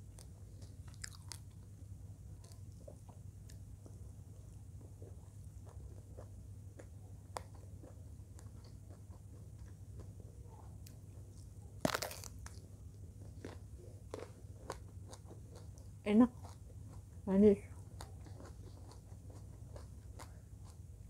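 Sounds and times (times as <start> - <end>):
chewing clicks: 0.1 - 1.7, 2.4 - 4.0, 5.0 - 10.2, 17.7 - 20.8
crisp crunch of biting: 0.6 - 1.6, 11.8 - 12.6.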